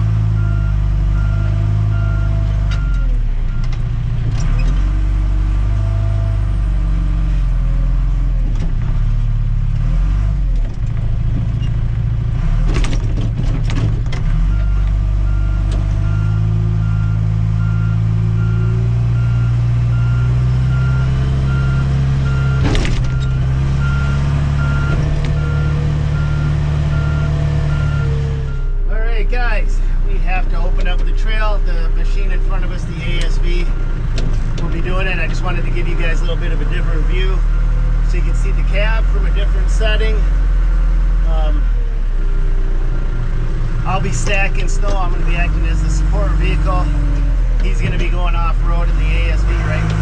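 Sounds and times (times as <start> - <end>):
diesel engine working under load: 0.0 - 50.0
backup alarm beeping: 14.5 - 28.8.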